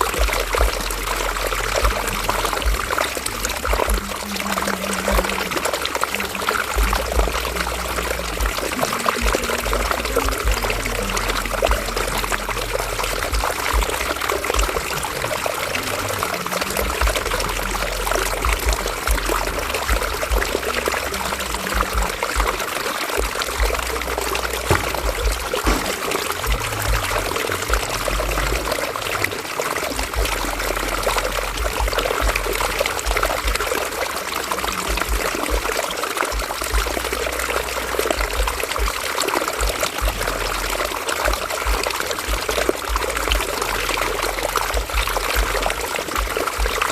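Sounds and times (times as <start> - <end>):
river water over rocks: 0.0 - 46.9
low rumble: 23.3 - 28.8.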